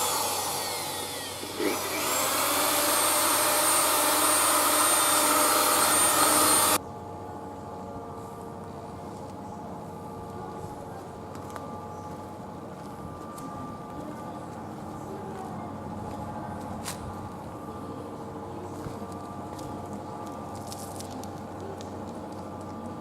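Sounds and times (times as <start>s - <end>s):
power tool whining: 0.0s - 6.8s
quiet steady hum: 6.8s - 23.0s.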